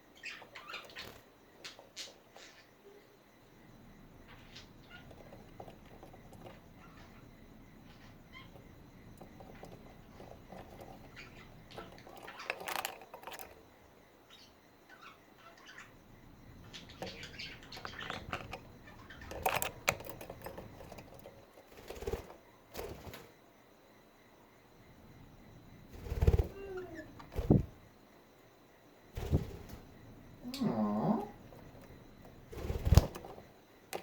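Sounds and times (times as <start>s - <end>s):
budgerigars chirping: 16.6s - 19.3s.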